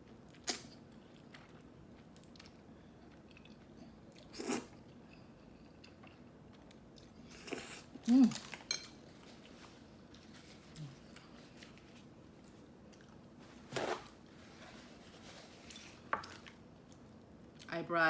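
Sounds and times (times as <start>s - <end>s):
slurp: 4.2s - 4.8s
chewing: 12.4s - 13.2s.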